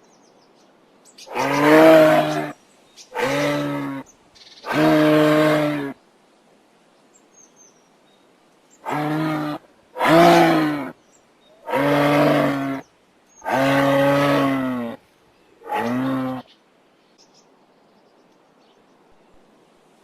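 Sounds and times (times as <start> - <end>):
moose calling: 1.3 - 6.0, 8.8 - 10.9, 11.6 - 15.0, 15.6 - 16.5.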